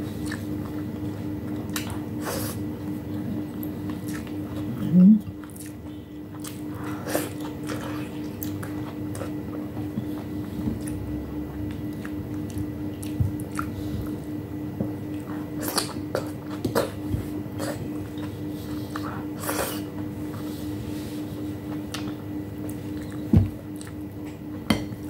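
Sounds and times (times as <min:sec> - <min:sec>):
person chewing soft food: 0:00.0 - 0:25.0
steady low hum: 0:00.0 - 0:25.0.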